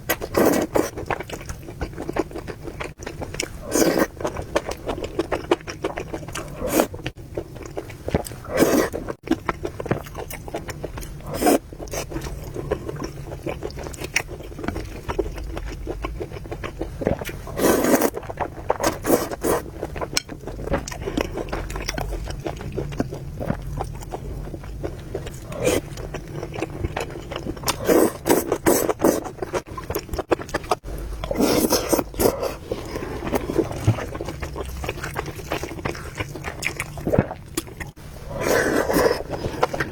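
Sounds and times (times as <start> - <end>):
chewing: 0.0 - 39.9
slurping noodles: 3.6 - 4.2, 6.3 - 7.0, 8.4 - 9.2, 11.2 - 12.8, 17.0 - 19.8, 27.3 - 29.6, 31.2 - 37.4, 38.2 - 39.9.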